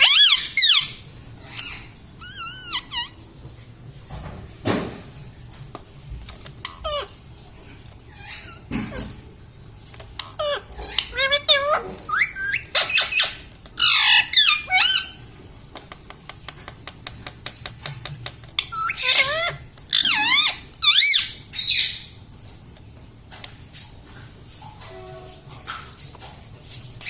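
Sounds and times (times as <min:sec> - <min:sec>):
parakeet squawking: 0:00.0 - 0:03.2, 0:06.6 - 0:07.2, 0:08.1 - 0:09.1, 0:10.2 - 0:15.2, 0:18.6 - 0:22.1.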